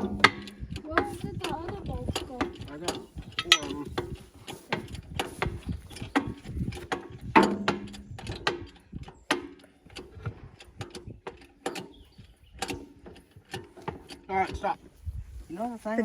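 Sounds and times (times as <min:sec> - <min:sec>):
metal bolts clicking and clanking: 0:02.2 - 0:05.2, 0:06.0 - 0:12.0.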